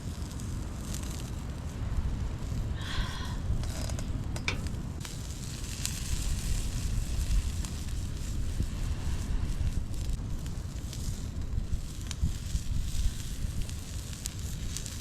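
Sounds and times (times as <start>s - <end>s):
campfire crackling and popping: 0.0s - 15.0s
low rumble: 1.7s - 5.3s.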